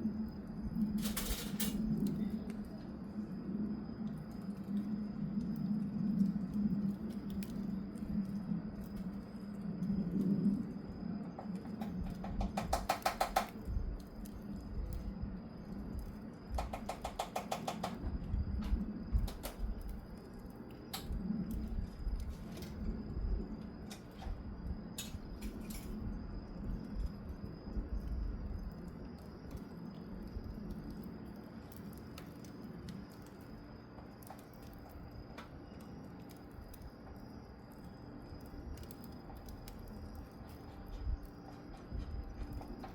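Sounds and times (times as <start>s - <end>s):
wood fire crackling: 0.0s - 42.9s
fast rattle of clicks: 11.8s - 13.6s, 16.5s - 18.0s
low steady rumble: 18.0s - 42.9s.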